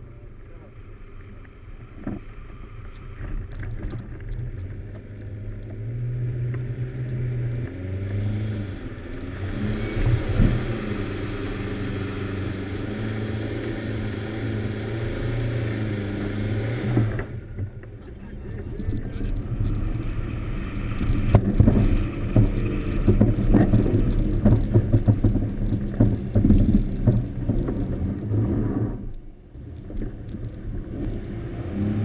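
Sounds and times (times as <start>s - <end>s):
off-road vehicle engine under load: 0.0s - 32.0s
hissing rush: 8.5s - 17.4s.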